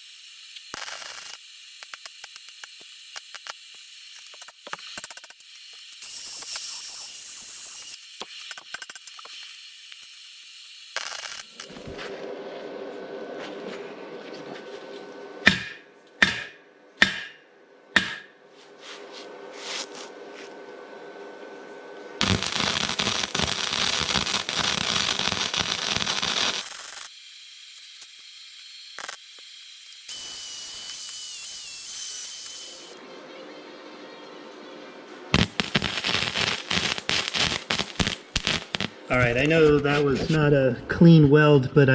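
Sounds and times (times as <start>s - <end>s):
arc welder crackling: 0.0s - 12.2s, 22.2s - 33.0s, 35.3s - 40.0s.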